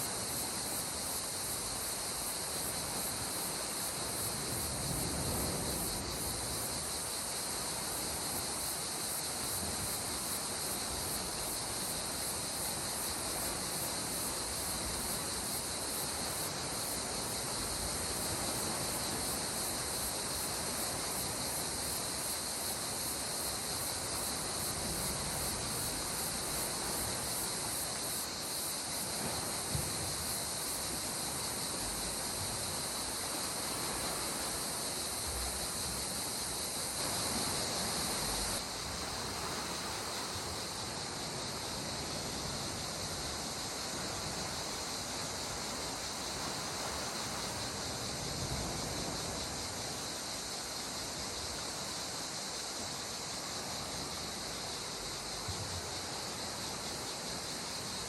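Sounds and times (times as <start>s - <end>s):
insects chorus: 0.0s - 58.0s.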